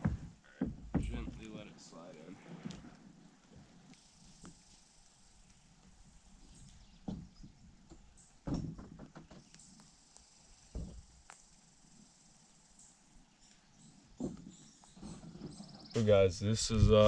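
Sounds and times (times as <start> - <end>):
thumps and knocks on canoe hull: 0.0 - 1.6, 7.0 - 9.5, 10.7 - 11.0, 14.2 - 15.8.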